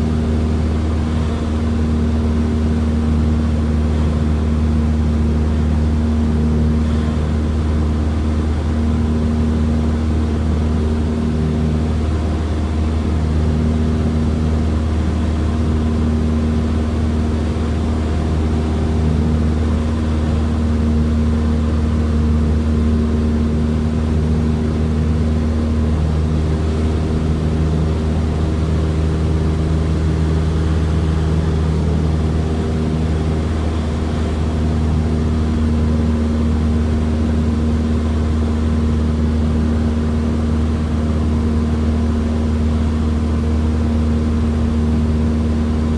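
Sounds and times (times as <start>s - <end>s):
airplane engine and propeller drone: 0.0s - 45.9s.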